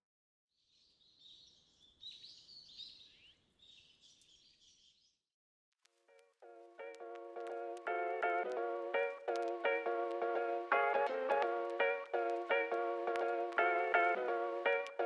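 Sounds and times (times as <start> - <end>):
small birds chirping: 0.6 - 5.2.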